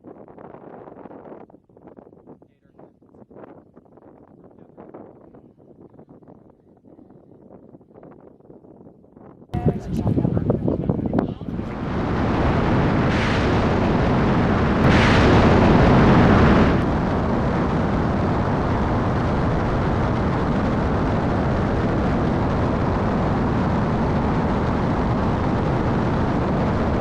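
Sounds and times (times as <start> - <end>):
jet engines roaring: 9.6 - 27.0.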